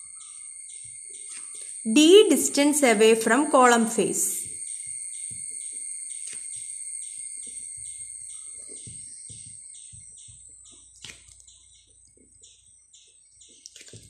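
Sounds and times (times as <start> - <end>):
bird chirping: 0.0 - 13.8
steady high-pitched tone: 1.9 - 4.6.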